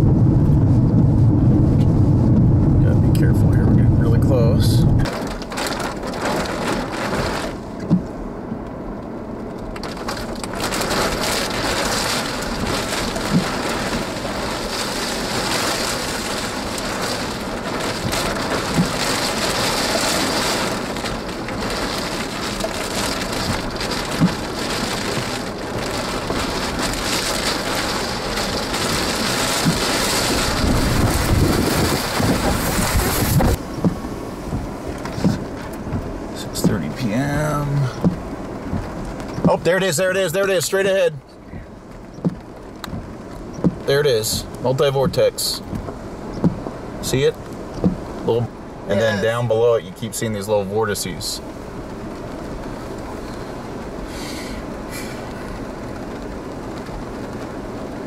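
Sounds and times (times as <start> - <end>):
low rumble: 0.0 - 40.2
heavy rain hitting a vehicle: 0.0 - 58.0.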